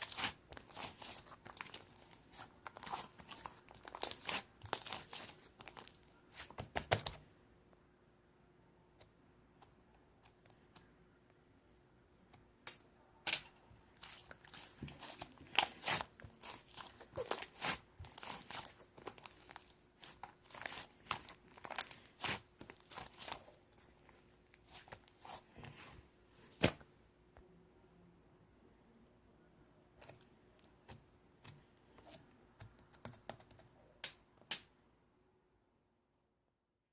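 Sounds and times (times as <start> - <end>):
slime crackling and popping: 0.0 - 7.0, 13.9 - 23.6.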